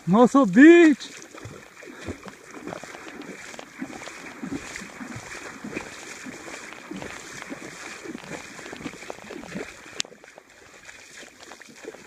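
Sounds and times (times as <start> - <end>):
river water sloshing and gurgling: 0.0 - 12.0.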